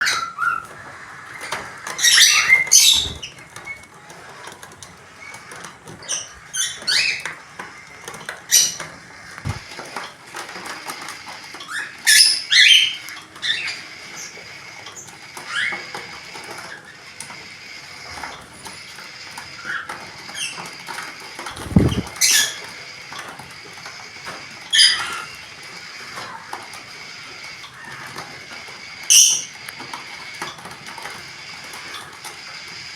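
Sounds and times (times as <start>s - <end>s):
budgerigars chirping: 0.0s - 3.7s, 5.2s - 9.6s, 11.7s - 14.4s, 21.6s - 22.6s, 24.8s - 25.4s.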